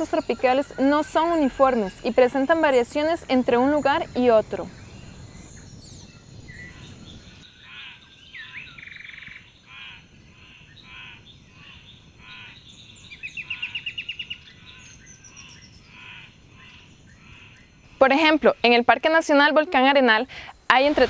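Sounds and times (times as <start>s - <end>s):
rapid bird trill: 0.0s - 18.4s
soft forest background: 0.0s - 21.0s.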